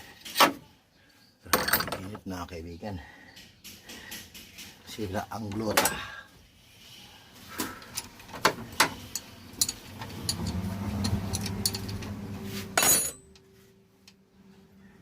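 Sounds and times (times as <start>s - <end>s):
hand tools clinking on metal: 12.8s - 13.3s.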